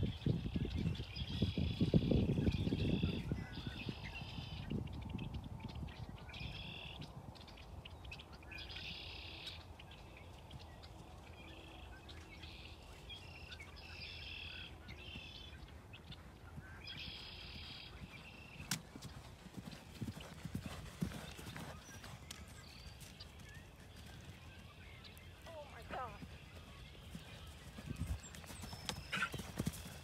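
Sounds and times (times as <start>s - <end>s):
birds calling with buzzy trills: 17.0s - 30.0s.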